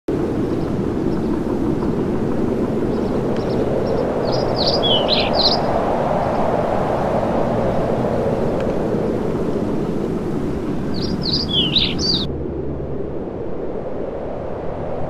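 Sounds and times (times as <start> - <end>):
low rumble: 0.1 - 15.0
high bird chirps: 2.9 - 5.8, 10.8 - 12.3.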